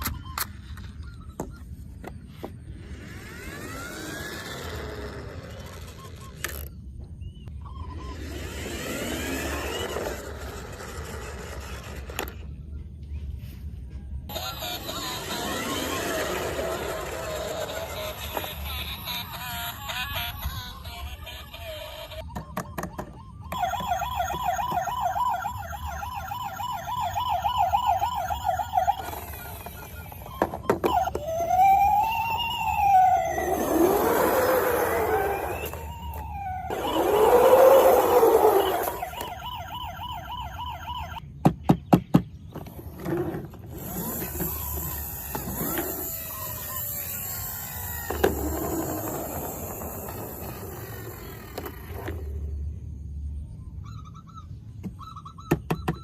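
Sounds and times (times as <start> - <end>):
electronic toy siren warbling: 0.0 - 12.5, 14.3 - 41.2, 43.7 - 56.0
wheels rolling past: 2.3 - 6.8, 14.4 - 19.7, 26.6 - 40.7, 42.6 - 52.8.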